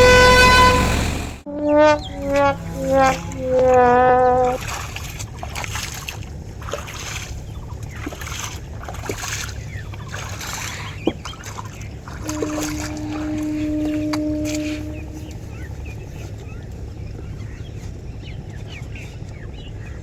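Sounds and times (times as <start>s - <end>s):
steady pitched tone: 0.0s - 4.8s, 12.2s - 15.9s
tractor diesel engine running: 0.0s - 20.0s.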